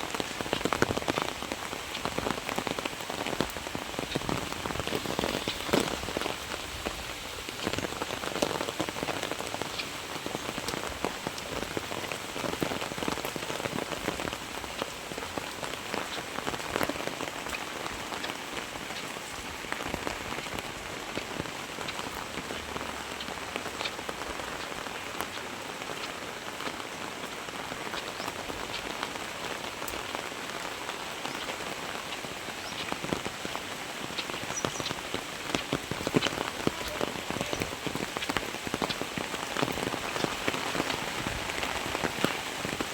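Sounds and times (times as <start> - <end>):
heavy rain hissing: 0.0 - 42.9
raindrops ticking: 0.0 - 42.9.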